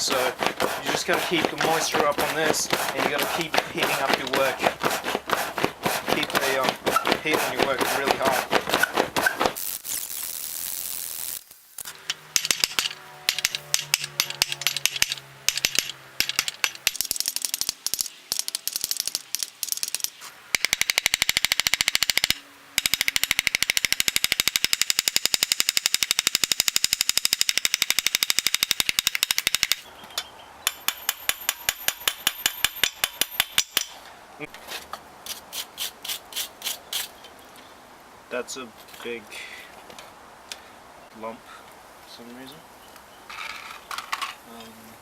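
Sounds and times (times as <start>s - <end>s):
hammer striking hot steel: 11.8s - 18.6s, 30.7s - 34.0s.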